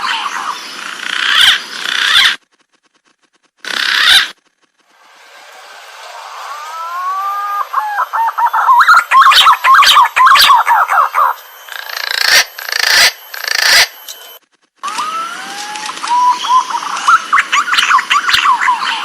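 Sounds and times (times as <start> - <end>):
pigeon whistled calls: 6.6 - 13.9, 14.9 - 19.0
harsh rasping bursts: 11.5 - 15.6.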